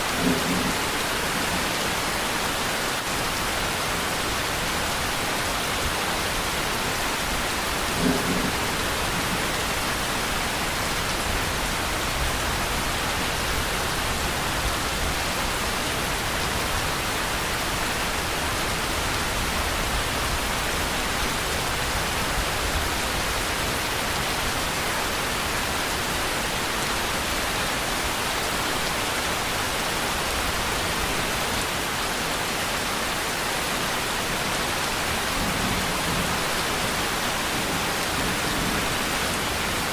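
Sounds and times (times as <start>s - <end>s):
steady rain: 0.0s - 39.9s
low thunder rumble: 7.7s - 10.4s.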